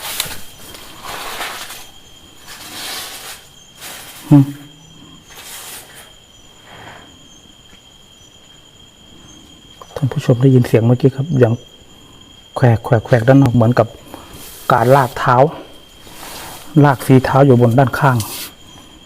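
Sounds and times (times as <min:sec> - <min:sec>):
feet dragging outside tent: 0:00.0 - 0:04.2, 0:14.3 - 0:17.1
insects shrilling: 0:00.0 - 0:19.0.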